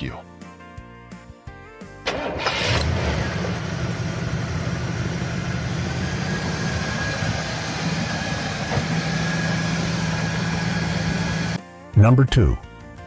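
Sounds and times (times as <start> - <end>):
car engine idling: 2.1 - 11.6.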